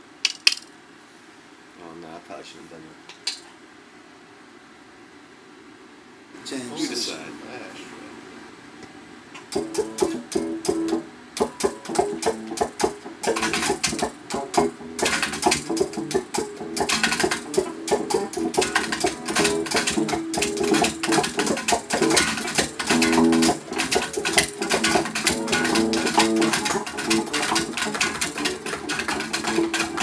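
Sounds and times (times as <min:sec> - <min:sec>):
guitar chord strumming: 0:09.5 - 0:30.0.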